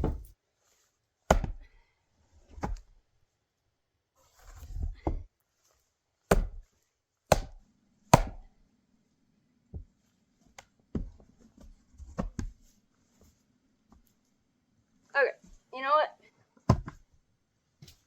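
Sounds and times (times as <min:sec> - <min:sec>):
axe splitting firewood: 0:00.0 - 0:00.3, 0:01.3 - 0:01.7, 0:06.3 - 0:06.6, 0:07.3 - 0:08.5.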